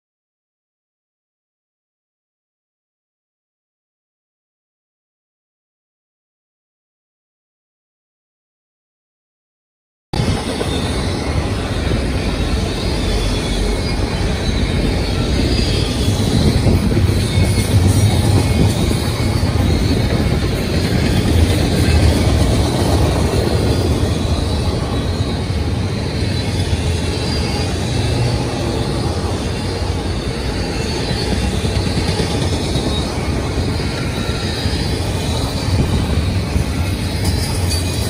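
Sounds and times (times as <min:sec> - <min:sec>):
faint high wheel squeals: 0:10.2 - 0:38.0
steel wheels rumbling on rail: 0:10.2 - 0:38.0.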